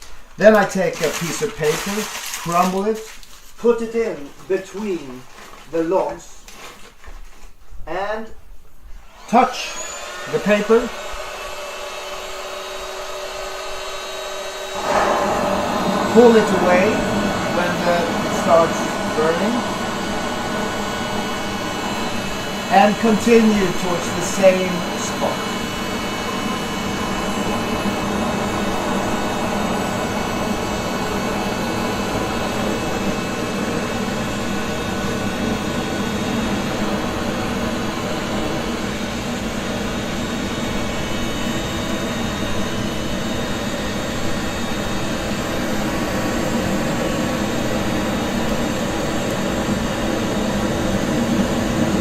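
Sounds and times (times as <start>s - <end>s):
faint motor whine: 8.6s - 52.0s
electric fire lighter fan whoosh: 10.3s - 41.6s, 43.1s - 52.0s.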